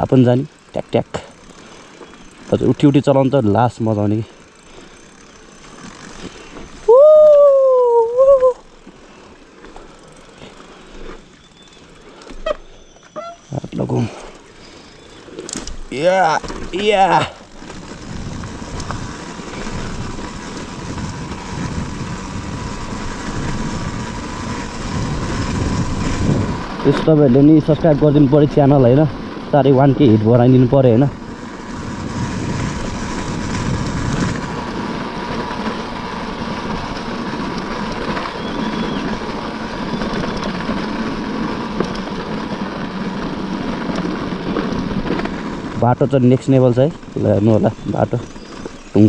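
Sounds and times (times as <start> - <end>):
dirt bike engine running: 0.0 - 49.0
wind noise on microphone: 17.8 - 29.4, 30.0 - 46.1.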